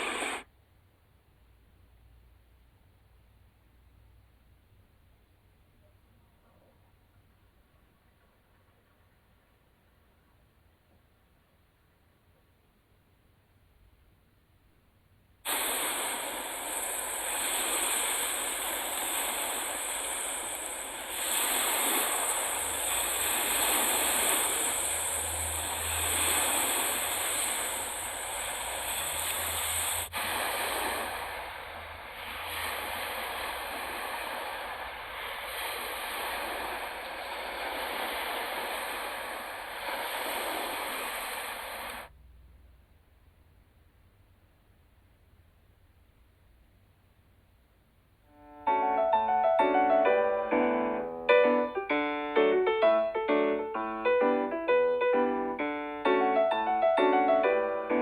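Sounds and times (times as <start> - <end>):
waves washing on shore: 0.0 - 0.4, 15.5 - 42.1, 56.0 - 58.0.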